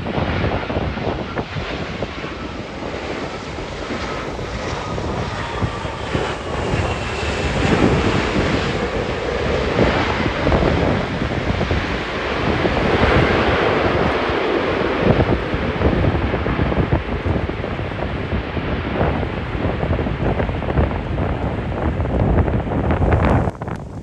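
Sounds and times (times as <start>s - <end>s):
airliner engines roaring: 0.0s - 24.0s
wind buffeting microphone: 0.0s - 24.0s.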